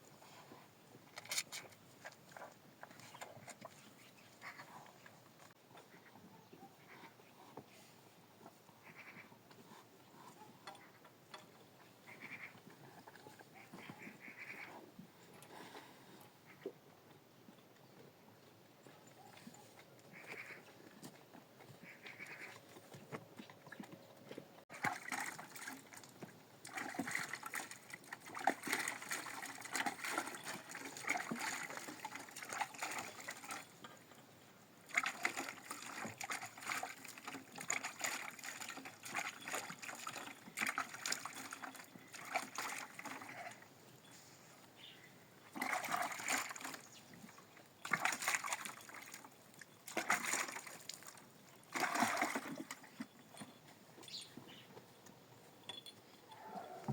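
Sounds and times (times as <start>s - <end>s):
liquid splashing and trickling: 24.7s - 33.9s, 34.8s - 43.6s, 45.5s - 53.2s.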